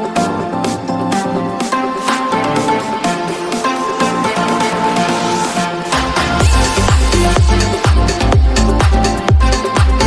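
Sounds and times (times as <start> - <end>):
electronic dance music: 0.0 - 10.0
sustained synth notes: 2.2 - 9.6
pounding kick drum: 6.3 - 10.0.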